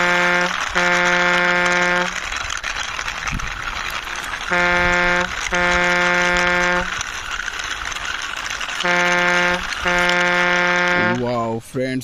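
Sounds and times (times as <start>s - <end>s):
vehicle horn honking: 0.0s - 2.2s, 4.5s - 7.0s, 8.8s - 11.2s.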